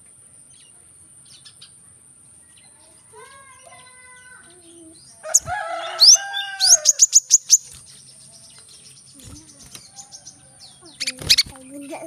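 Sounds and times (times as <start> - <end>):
bird calling: 2.6 - 12.0.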